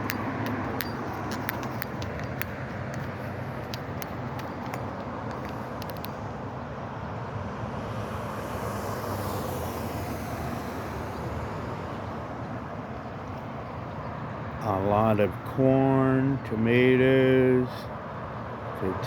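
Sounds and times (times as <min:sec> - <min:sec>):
water rushing in a canal: 0:00.0 - 0:15.4
high hiss: 0:07.7 - 0:12.3.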